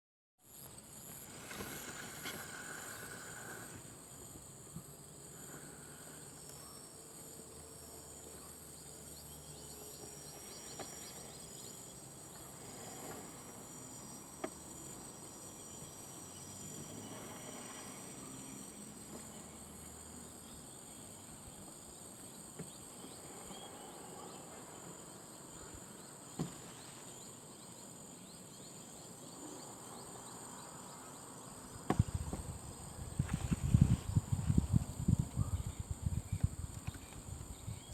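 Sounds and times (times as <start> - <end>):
insects chorus: 0.4 - 37.9.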